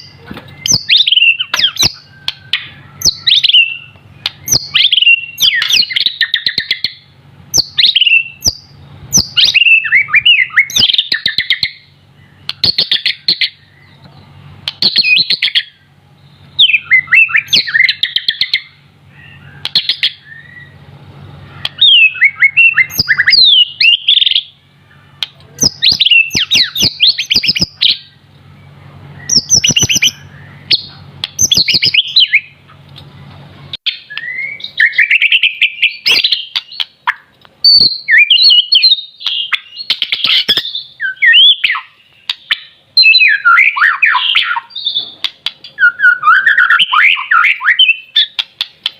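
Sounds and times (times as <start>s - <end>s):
bird singing whistled phrases: 0.0s - 14.0s, 14.7s - 20.8s, 21.5s - 32.6s, 33.9s - 45.2s, 45.8s - 48.4s
sharp clicks in birdsong: 0.0s - 20.8s, 21.4s - 48.9s
faint low hum: 0.0s - 48.9s.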